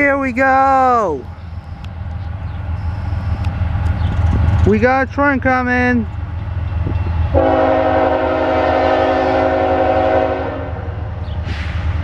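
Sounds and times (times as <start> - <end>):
train low rumble: 0.0 - 12.0
locomotive air horn blast: 7.4 - 11.7.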